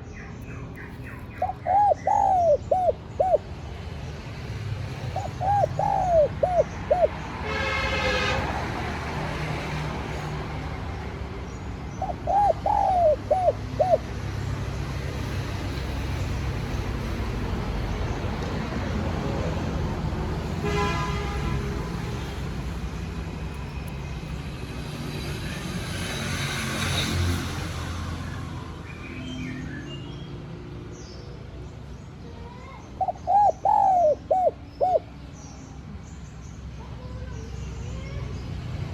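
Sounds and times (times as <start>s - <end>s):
dove cooing: 1.1s - 3.5s, 5.0s - 7.2s, 11.9s - 14.2s, 33.0s - 35.1s.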